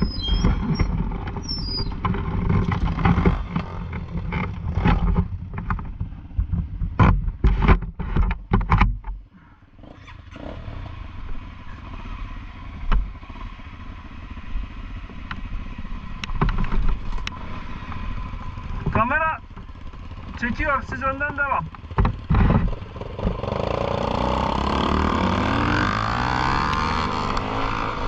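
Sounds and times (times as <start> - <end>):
motorcycle engine revving: 0.0 - 7.3, 9.4 - 28.0
sharp clattering knocks: 21.2 - 23.6.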